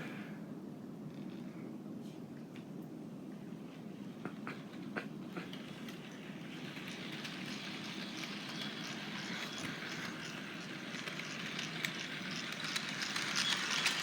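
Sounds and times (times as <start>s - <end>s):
model train rumbling: 3.8s - 14.0s.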